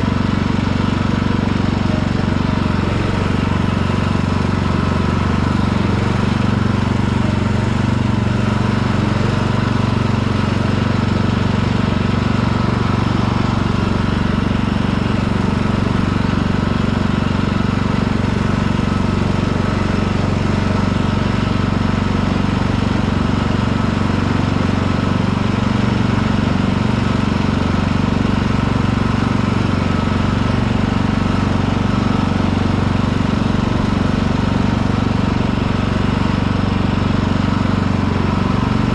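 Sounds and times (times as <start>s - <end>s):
lawn tractor engine running: 0.0s - 38.9s.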